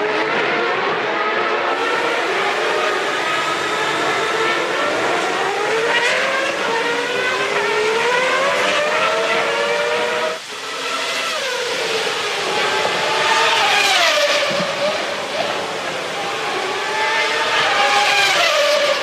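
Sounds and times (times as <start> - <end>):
race car engines at high revs: 0.0 - 19.0.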